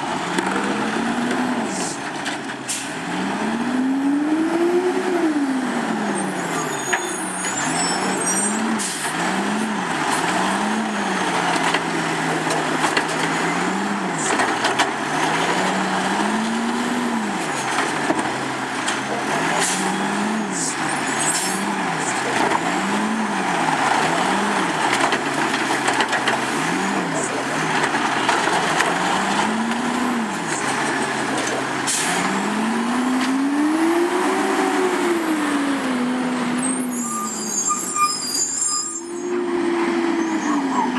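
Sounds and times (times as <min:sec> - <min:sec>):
truck diesel engine revving: 0:00.0 - 0:40.9.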